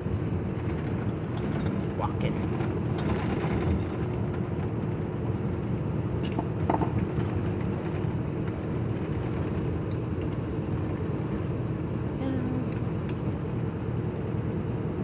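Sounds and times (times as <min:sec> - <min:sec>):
truck engine and road noise: 0:00.0 - 0:15.0
light clicks and rattles: 0:00.6 - 0:04.9.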